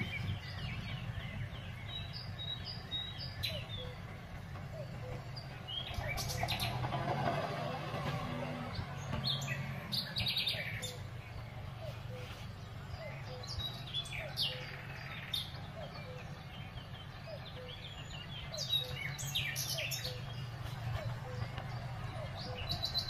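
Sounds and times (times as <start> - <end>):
small birds chirping: 0.0 - 23.0
tractor engine droning: 0.0 - 23.0.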